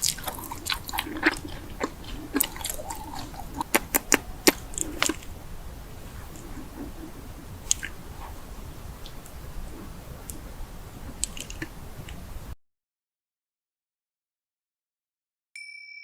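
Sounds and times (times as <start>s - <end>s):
chewing and biting food: 0.0s - 12.5s
crunchy clicks and crackles: 0.0s - 12.6s.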